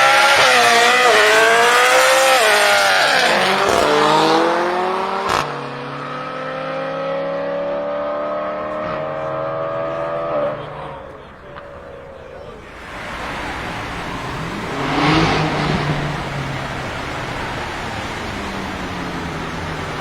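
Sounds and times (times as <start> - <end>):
car engine accelerating hard: 0.0 - 20.0
quieter engine note rising: 6.4 - 20.0.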